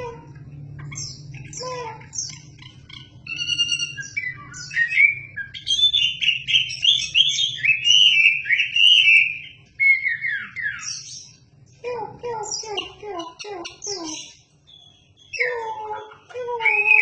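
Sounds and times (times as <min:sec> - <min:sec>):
songbird whistling notes: 0:00.8 - 0:11.3.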